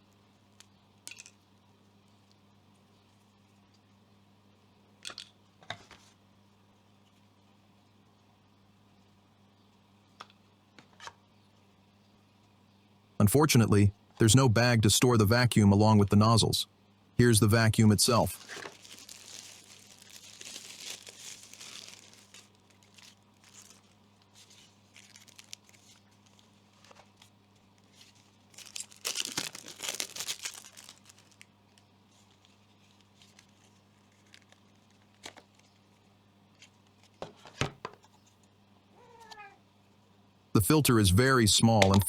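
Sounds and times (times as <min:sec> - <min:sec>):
faint steady hum: 0:00.0 - 0:42.0
plastic packaging crinkling: 0:18.2 - 0:37.0.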